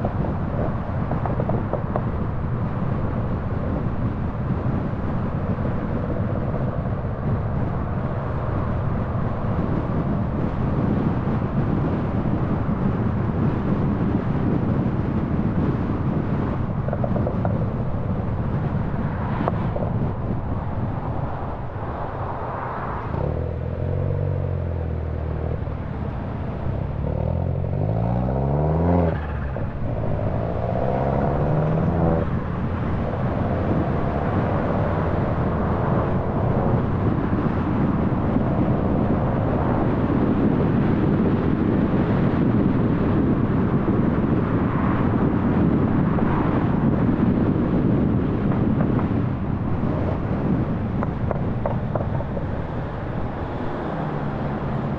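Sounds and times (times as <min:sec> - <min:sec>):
tyre and road noise: 0:00.0 - 0:54.9
car engine accelerating: 0:17.0 - 0:40.9.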